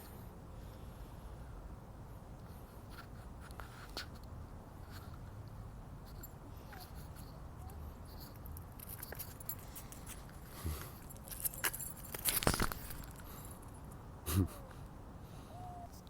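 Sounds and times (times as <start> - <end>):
light jingling: 6.0 - 14.0.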